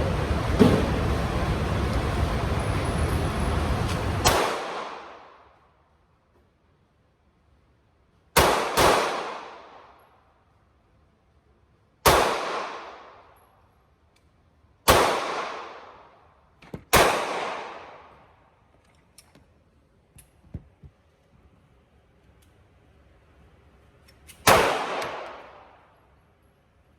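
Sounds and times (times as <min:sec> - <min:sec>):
pistol shots with echo: 0:04.2 - 0:05.4, 0:08.4 - 0:10.0, 0:12.0 - 0:13.3, 0:14.9 - 0:16.2, 0:16.9 - 0:18.2, 0:24.4 - 0:25.8.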